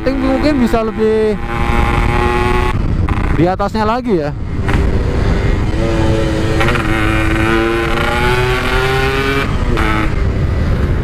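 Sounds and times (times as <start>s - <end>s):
two-stroke motorcycle engine: 0.0s - 3.6s
wind rumble on microphone: 0.0s - 11.0s.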